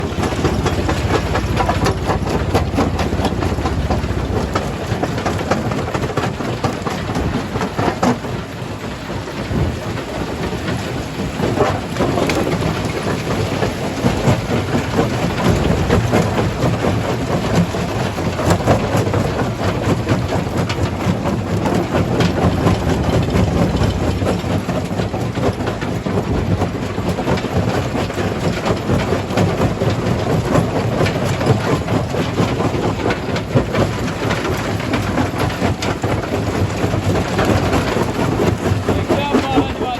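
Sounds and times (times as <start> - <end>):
jaw crusher rumbling: 0.0 - 7.8, 14.0 - 17.9, 20.3 - 26.9.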